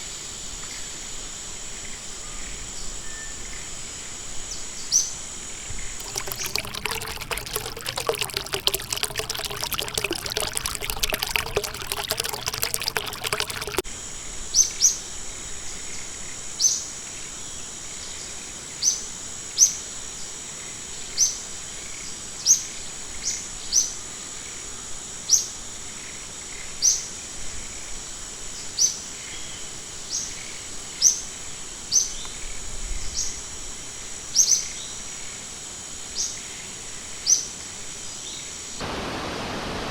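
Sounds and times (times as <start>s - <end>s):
water splashing and trickling: 6.0s - 13.8s.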